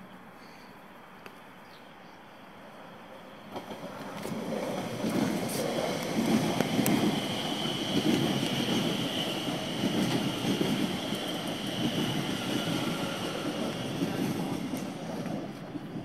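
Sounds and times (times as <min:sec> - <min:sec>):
train wheels rumbling on rail: 0:03.4 - 0:16.0.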